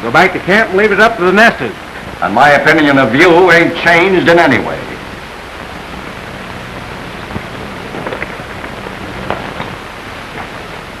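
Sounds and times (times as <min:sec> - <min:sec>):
steady hiss: 0:00.0 - 0:11.0
faint crackles: 0:04.8 - 0:11.0
low hum: 0:04.8 - 0:11.0.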